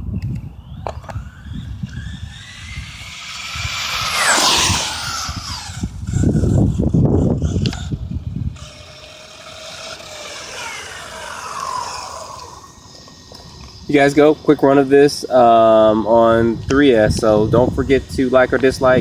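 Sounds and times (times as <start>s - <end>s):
low rumbling noise: 0.0s - 8.7s
rc truck motor whine: 0.0s - 19.0s.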